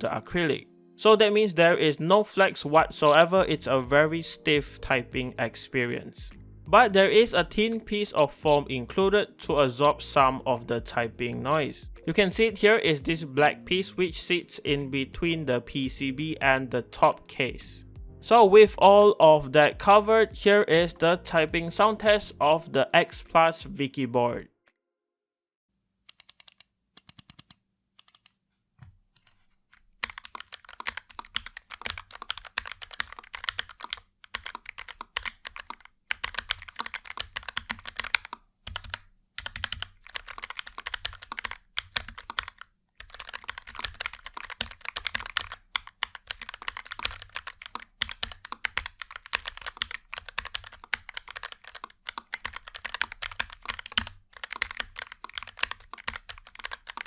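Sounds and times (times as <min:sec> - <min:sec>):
typing on mechanical keyboard: 0:26.1 - 0:28.3, 0:30.0 - 0:57.0.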